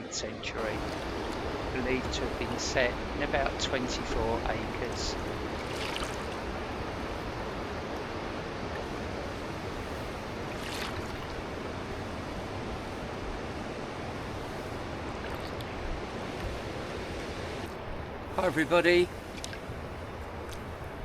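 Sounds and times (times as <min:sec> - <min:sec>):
river water rushing: 0:00.0 - 0:21.0
wind: 0:00.0 - 0:21.0.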